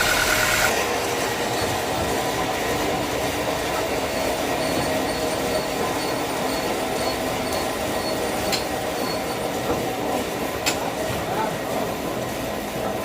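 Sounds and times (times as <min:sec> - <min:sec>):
sawmill machine drone: 0:00.0 - 0:08.1.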